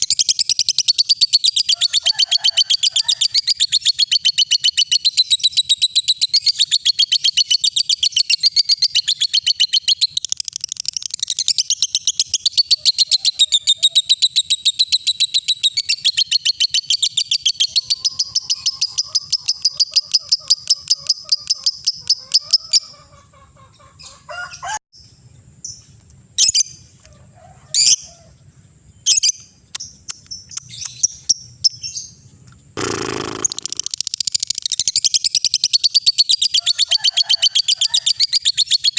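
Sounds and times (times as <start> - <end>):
lovebird rapid chirping: 0.0 - 1.8, 2.8 - 23.0, 29.0 - 32.2, 32.8 - 36.8, 38.1 - 38.9
harsh bird call: 32.8 - 34.0.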